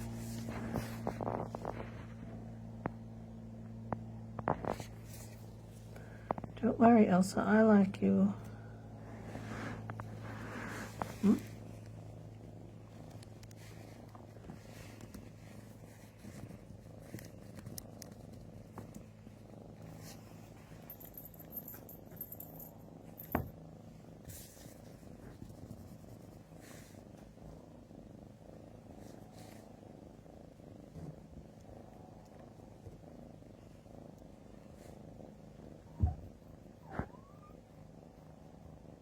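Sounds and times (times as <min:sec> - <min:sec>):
cat purring: 0:00.0 - 0:39.0.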